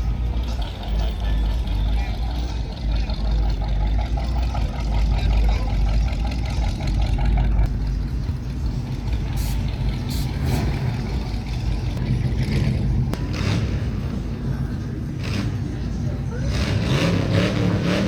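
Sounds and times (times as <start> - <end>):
car engine rumbling: 0.0 - 18.0.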